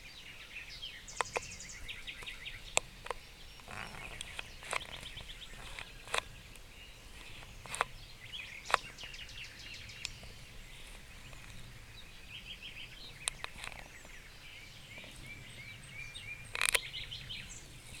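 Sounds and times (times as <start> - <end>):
songbirds trilling: 0.0 - 18.0
sharp clicks: 1.2 - 1.6, 2.2 - 6.6, 7.2 - 9.2, 13.2 - 14.2, 16.5 - 17.0.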